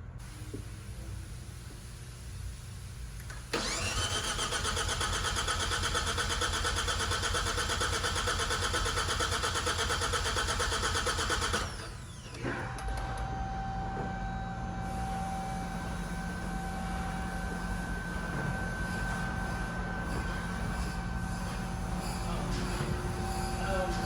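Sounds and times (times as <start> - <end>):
starter motor cranking: 3.5 - 12.4.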